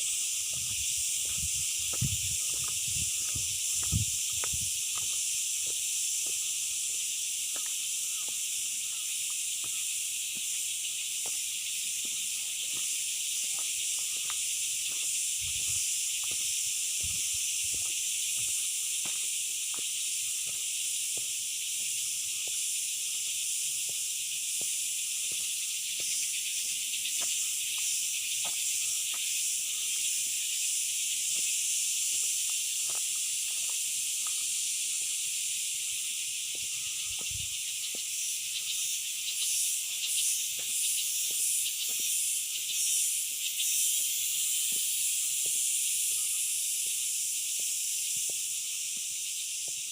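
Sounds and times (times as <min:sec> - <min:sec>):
high-pitched insect chorus: 0:00.0 - 0:49.9.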